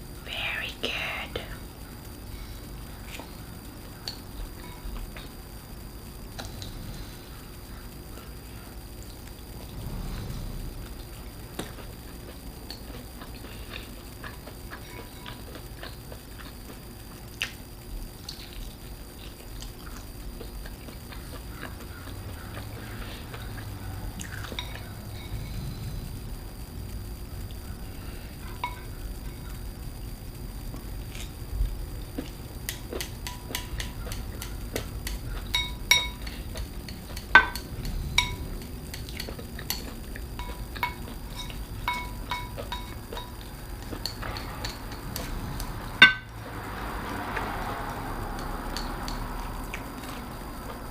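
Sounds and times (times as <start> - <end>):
chewing clicks and smacks: 11.5 - 25.0
utensils clinking on dishes: 14.7 - 15.9, 21.6 - 25.6, 28.5 - 29.4, 32.7 - 45.4, 46.0 - 46.5, 48.7 - 50.2.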